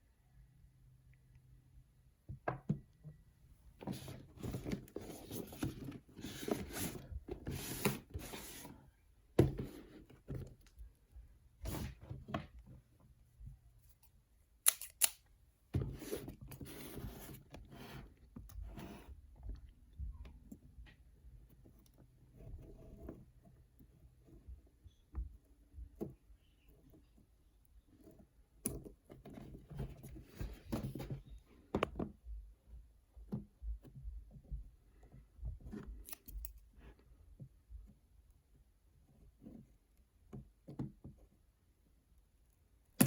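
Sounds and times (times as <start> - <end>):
packaging rustling and scraping: 3.8 - 8.8.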